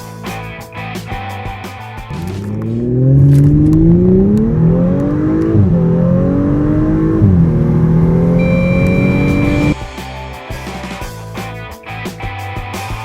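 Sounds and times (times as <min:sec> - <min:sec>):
car engine accelerating: 0:02.1 - 0:09.8
high-pitched beep: 0:08.3 - 0:09.8.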